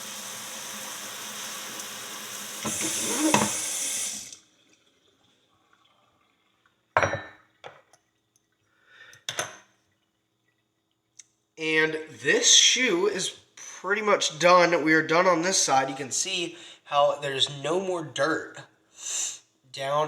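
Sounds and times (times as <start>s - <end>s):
water running from tap: 0.0s - 7.0s.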